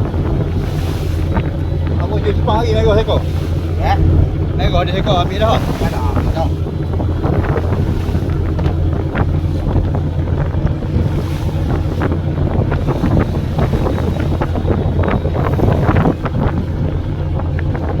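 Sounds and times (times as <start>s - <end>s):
boat engine drone: 0.0s - 18.0s
water splashing: 0.0s - 18.0s
wind buffeting microphone: 0.0s - 18.0s.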